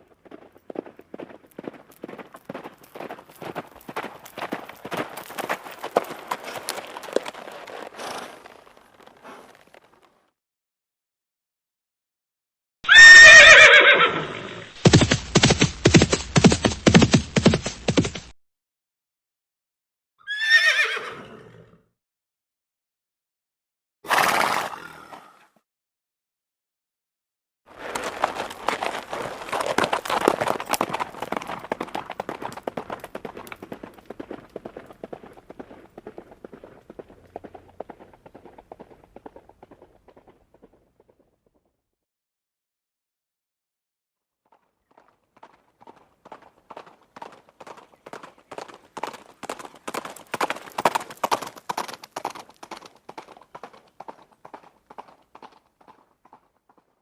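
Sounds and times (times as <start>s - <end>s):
horse hooves galloping: 0.0s - 10.2s, 14.8s - 18.4s, 27.7s - 41.7s, 44.5s - 57.0s.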